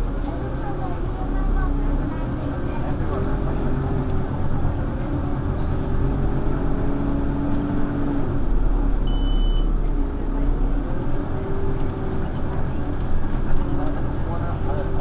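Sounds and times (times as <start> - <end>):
bus diesel engine rumbling: 0.0 - 15.0
high beep: 9.1 - 9.7.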